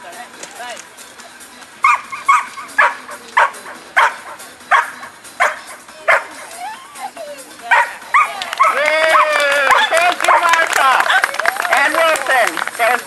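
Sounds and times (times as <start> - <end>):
dog barking: 1.8 - 6.5, 7.7 - 11.2.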